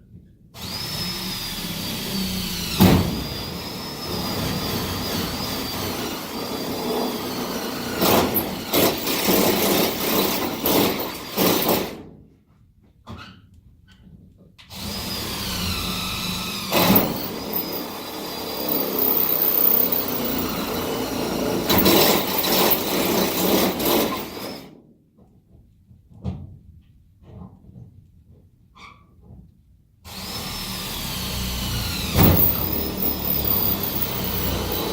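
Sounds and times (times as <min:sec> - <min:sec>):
cordless drill whining: 0:00.6 - 0:11.9, 0:14.7 - 0:24.7, 0:30.1 - 0:34.9.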